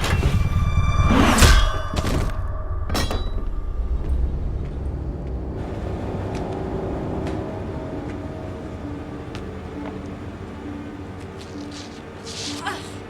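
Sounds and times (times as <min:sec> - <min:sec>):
low machinery rumble: 0:03.5 - 0:13.0.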